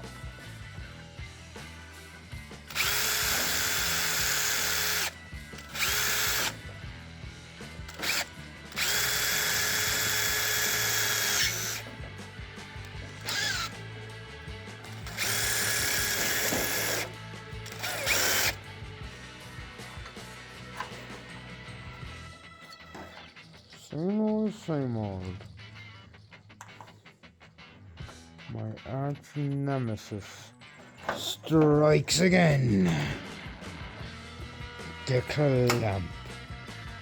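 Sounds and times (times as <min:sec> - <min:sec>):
background music: 0:00.0 - 0:37.0
power drill whining: 0:02.7 - 0:06.8, 0:07.9 - 0:23.3.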